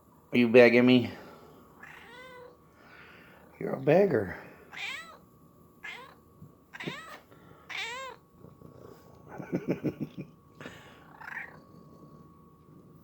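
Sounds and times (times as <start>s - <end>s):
cats meowing: 1.8s - 2.6s, 4.7s - 5.2s, 5.8s - 8.2s, 10.9s - 11.7s.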